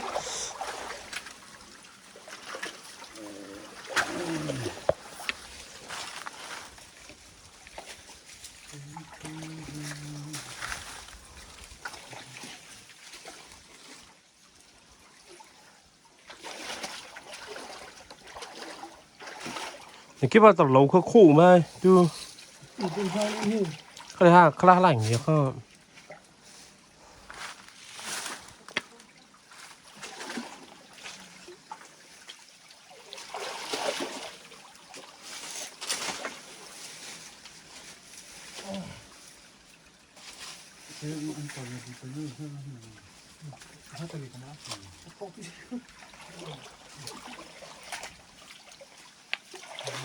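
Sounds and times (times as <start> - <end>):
louder water splashes: 0.0 - 6.8, 22.7 - 25.6, 32.9 - 34.7
stream water splashing: 0.0 - 50.0.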